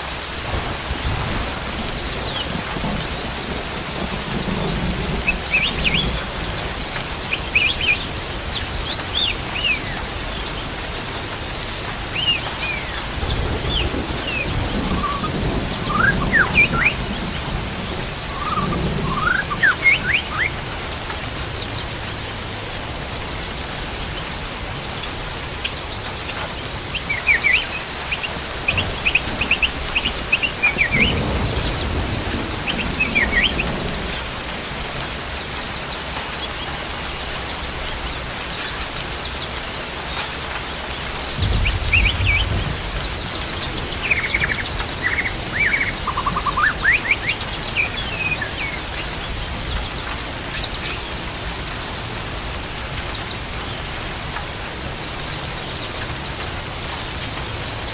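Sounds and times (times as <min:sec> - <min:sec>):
steady hiss: 0:00.0 - 0:57.9
songbird chirping and trilling: 0:00.6 - 0:10.7, 0:11.6 - 0:20.6, 0:25.0 - 0:35.3, 0:40.2 - 0:51.5.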